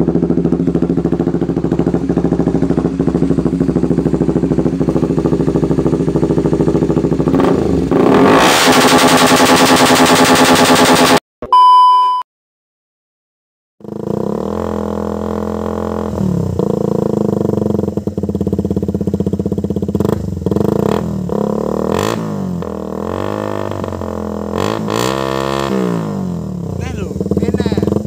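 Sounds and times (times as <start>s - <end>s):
motorcycle idling with throttle blips: 0.0s - 7.9s, 13.8s - 24.6s, 26.2s - 28.0s.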